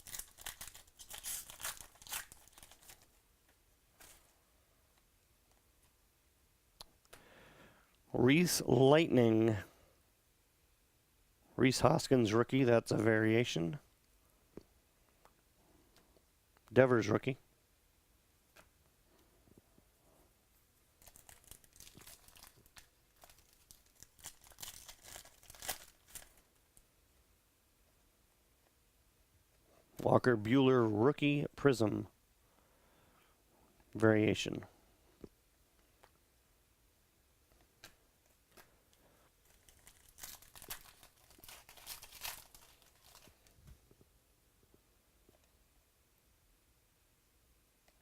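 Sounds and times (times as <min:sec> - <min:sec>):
foil wrapper tearing and crinkling: 0:00.0 - 0:03.1, 0:21.0 - 0:26.5, 0:39.4 - 0:43.5.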